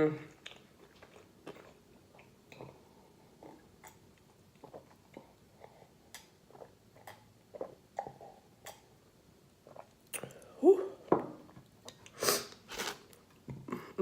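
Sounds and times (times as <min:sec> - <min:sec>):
person chewing: 0:00.3 - 0:08.9.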